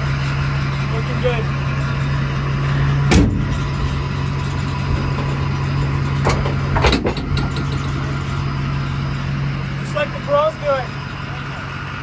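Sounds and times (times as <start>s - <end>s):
vehicle engine idling: 0.0s - 12.0s
short metallic knocks: 2.9s - 8.4s.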